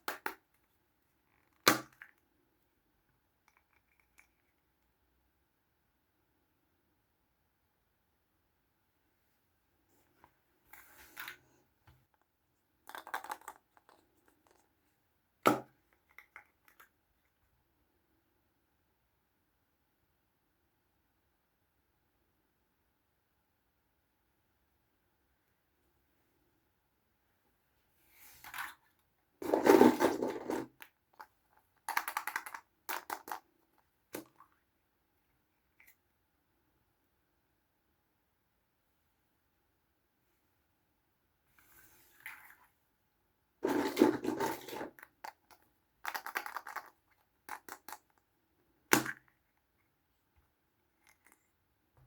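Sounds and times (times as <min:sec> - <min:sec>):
plastic toys rustling and scraping: 0:10.7 - 0:11.6, 0:28.0 - 0:34.4, 0:41.5 - 0:42.8, 0:43.6 - 0:48.2.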